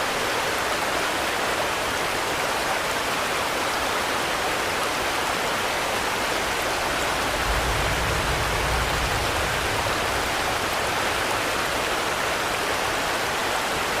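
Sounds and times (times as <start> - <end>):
steady rain hiss: 0.0 - 14.0
low rumble: 6.8 - 11.3.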